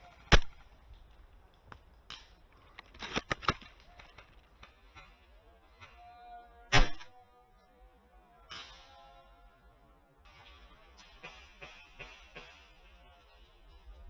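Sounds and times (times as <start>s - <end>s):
sharp mechanical clicks: 2.8s - 4.2s.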